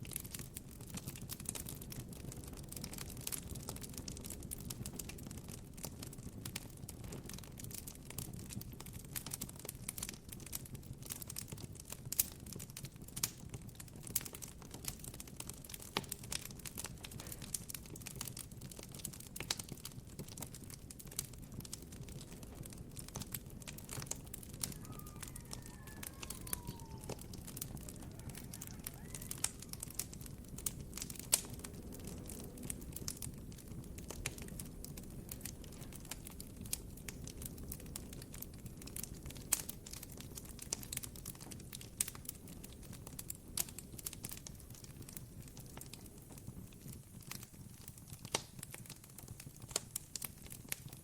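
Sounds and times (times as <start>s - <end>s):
campfire crackling and popping: 0.0s - 51.0s
falling whistle-like tone: 24.7s - 29.7s.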